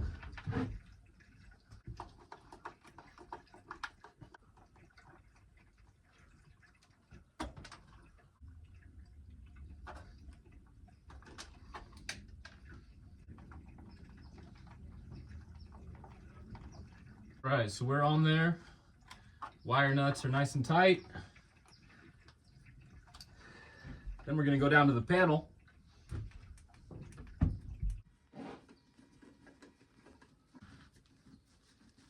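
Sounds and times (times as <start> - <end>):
low steady hum: 4.5 - 28.0.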